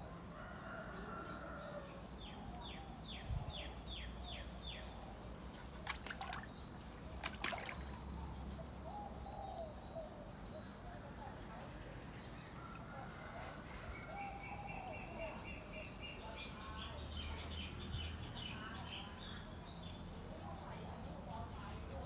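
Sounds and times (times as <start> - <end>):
water sloshing in a tub: 5.1 - 14.0
water splashing: 5.5 - 9.0.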